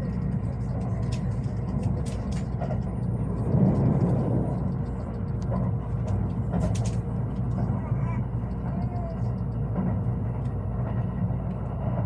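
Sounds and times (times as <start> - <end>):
sharp clicks: 0.0 - 9.7
low vehicle rumble: 0.0 - 12.0.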